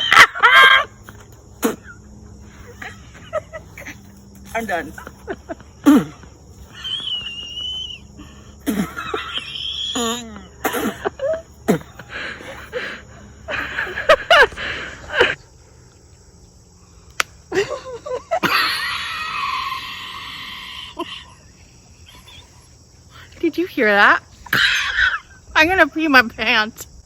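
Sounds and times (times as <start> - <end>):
women laughing: 0.0 - 15.4, 17.5 - 22.6, 24.4 - 25.5.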